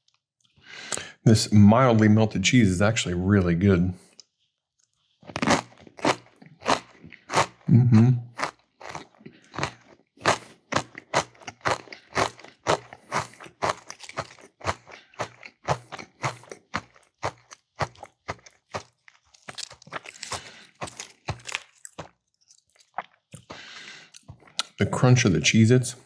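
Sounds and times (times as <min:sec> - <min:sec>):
crunching and chewing crackers: 0:04.0 - 0:24.8.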